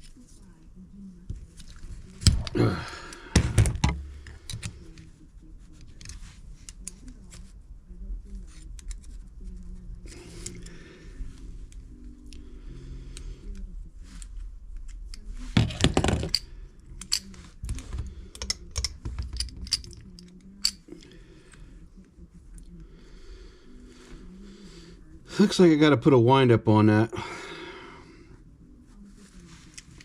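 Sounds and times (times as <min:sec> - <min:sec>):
small metal parts clicking: 0:18.3 - 0:20.8.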